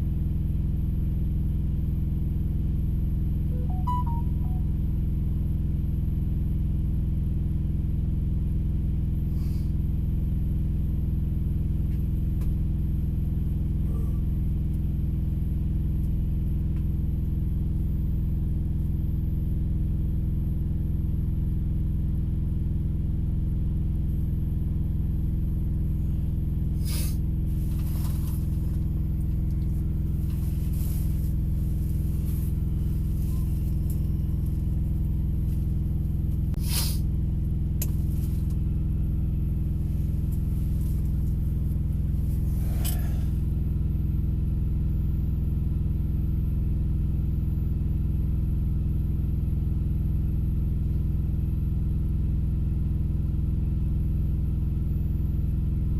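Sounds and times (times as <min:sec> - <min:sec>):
vehicle engine idling: 0:00.0 - 0:55.9
short hisses: 0:26.8 - 0:27.2, 0:36.6 - 0:37.1.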